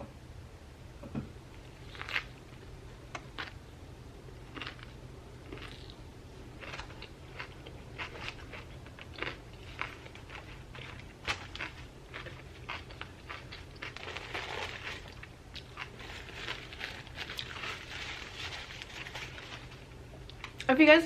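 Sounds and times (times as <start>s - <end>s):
chewing crunches: 1.8s - 2.6s, 4.4s - 6.0s, 6.6s - 20.7s.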